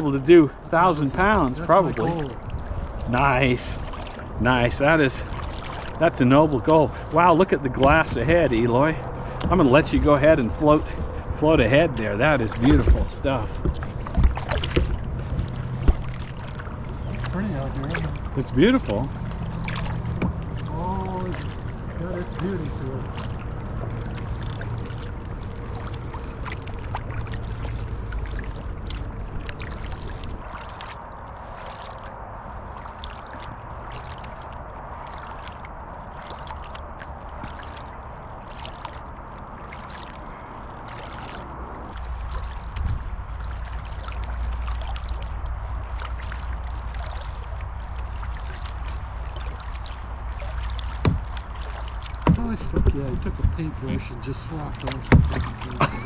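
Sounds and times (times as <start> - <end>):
low rumble: 0.0 - 56.0
paddle blades dipping in water: 0.0 - 56.0
water trickling and dripping: 0.0 - 56.0.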